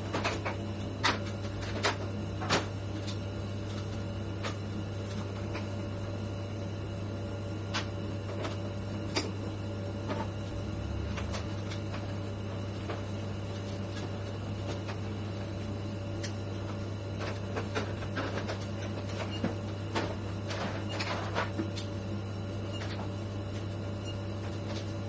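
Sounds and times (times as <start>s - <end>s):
mechanical hum: 0.0s - 25.0s.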